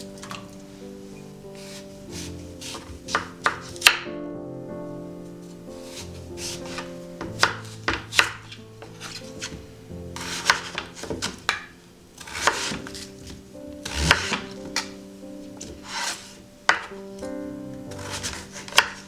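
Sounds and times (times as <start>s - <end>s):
soft background music: 0.0s - 19.0s
knife chopping on cutting board: 1.6s - 4.0s, 5.8s - 14.9s, 15.6s - 16.9s, 17.9s - 19.0s.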